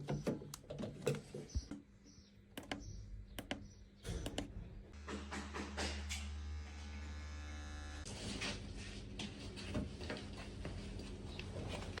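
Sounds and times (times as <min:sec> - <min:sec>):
small electric motor buzzing: 0:05.0 - 0:08.1.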